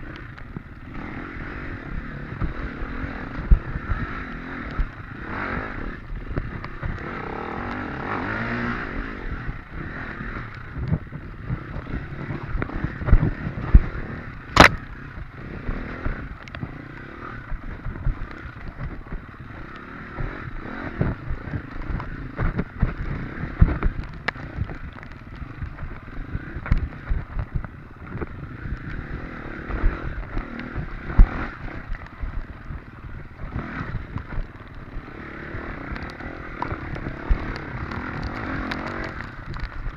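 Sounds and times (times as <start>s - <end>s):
dirt bike engine revving: 0.8s - 10.5s, 11.5s - 17.4s, 28.4s - 39.9s
bike knocking over bumps: 14.6s - 14.8s
sharp click: 14.6s - 14.8s.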